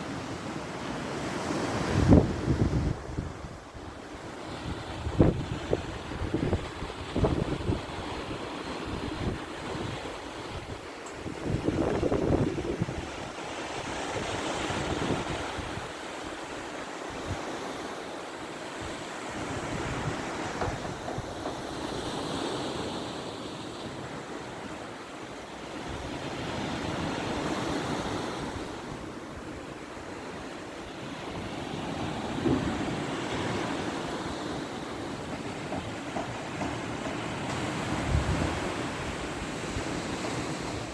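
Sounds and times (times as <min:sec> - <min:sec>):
wind buffeting microphone: 0:01.7 - 0:16.0, 0:31.3 - 0:40.9.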